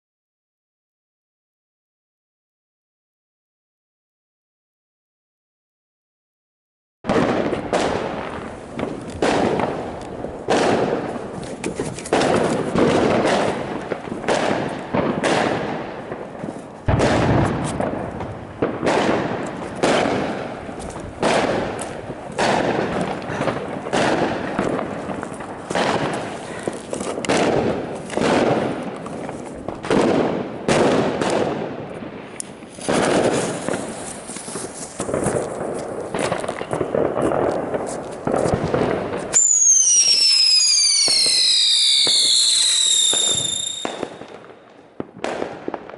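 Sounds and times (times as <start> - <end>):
spinning fireworks whistling: 39.3 - 44.3.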